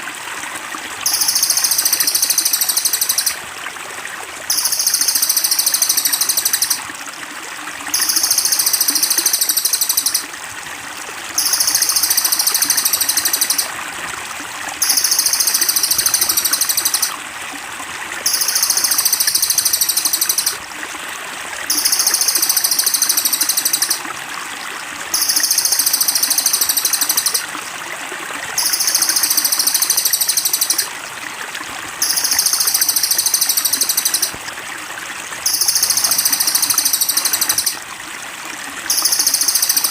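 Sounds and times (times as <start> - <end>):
trickling water: 0.0 - 39.9
songbird buzzing trill: 1.1 - 3.4, 4.5 - 6.9, 8.0 - 10.2, 11.4 - 13.7, 14.8 - 17.2, 18.3 - 20.6, 21.7 - 24.0, 25.2 - 27.4, 28.6 - 30.9, 32.0 - 34.4, 35.5 - 37.8, 38.9 - 39.9.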